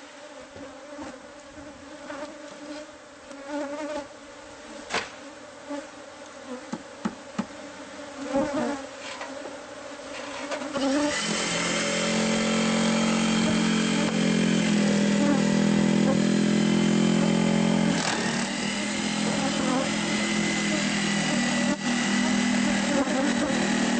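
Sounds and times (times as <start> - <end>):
honeybees buzzing: 0.0 - 23.9.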